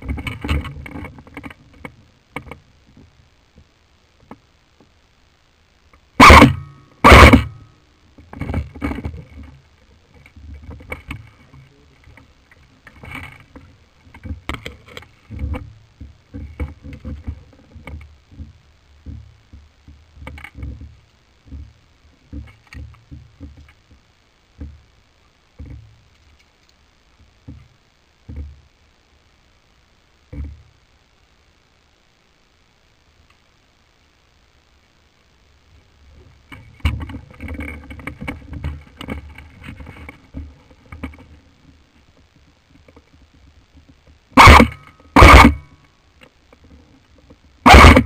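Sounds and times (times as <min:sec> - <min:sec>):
loud sharp knocks: 0:47.7 - 0:48.0.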